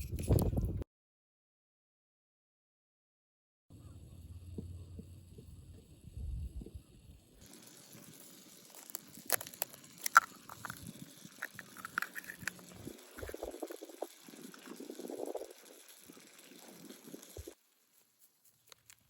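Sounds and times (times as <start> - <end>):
small objects clicking and clinking: 7.4 - 17.6.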